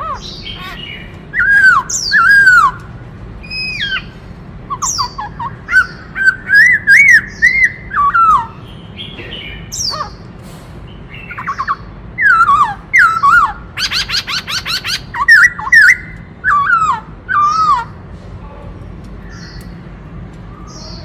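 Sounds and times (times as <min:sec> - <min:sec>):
bird singing whistled phrases: 0:01.3 - 0:02.8, 0:04.7 - 0:08.6, 0:11.2 - 0:17.9.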